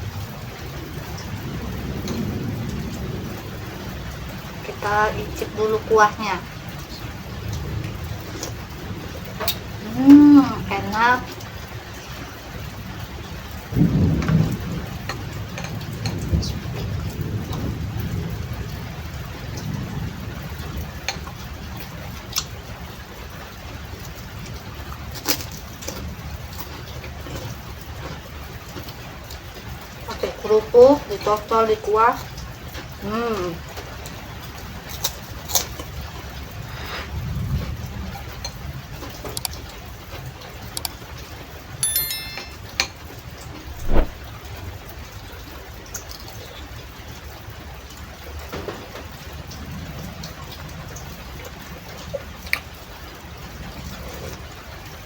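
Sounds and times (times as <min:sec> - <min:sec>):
steady rain falling: 0:00.0 - 0:41.8, 0:43.2 - 0:55.0
spoon clinking against bowl: 0:41.8 - 0:42.6.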